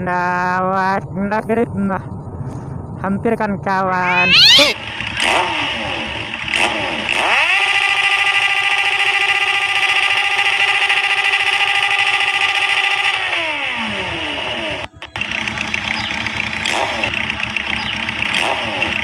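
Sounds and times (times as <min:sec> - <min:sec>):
motorcycle engine revving: 0:04.4 - 0:19.0.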